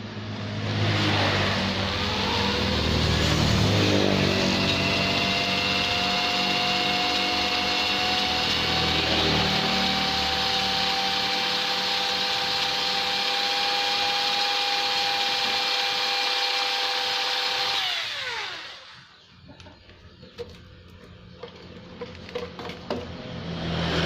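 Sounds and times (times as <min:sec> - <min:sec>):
grinder spinning down: 0:00.6 - 0:19.3
die grinder running: 0:01.9 - 0:19.2.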